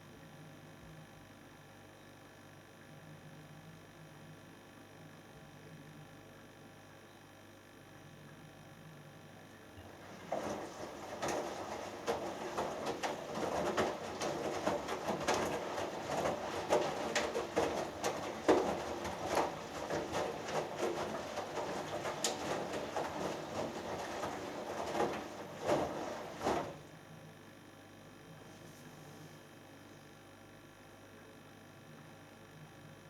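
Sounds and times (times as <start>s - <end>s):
washing machine drum thudding and sloshing: 9.8s - 26.9s.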